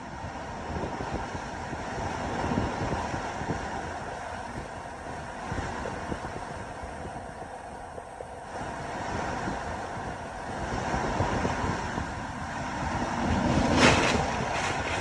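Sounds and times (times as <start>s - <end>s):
storm waves surging: 0.0s - 15.0s
wind gusts buffeting microphone: 0.0s - 15.0s
wave crashing loudly: 12.6s - 15.0s.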